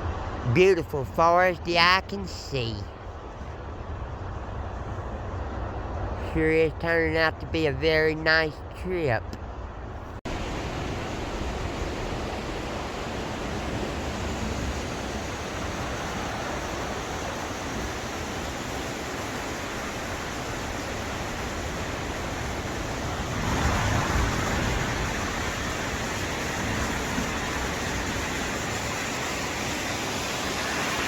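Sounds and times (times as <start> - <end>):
freight train rumble: 9.2 - 31.0
wind rushing: 20.2 - 31.0.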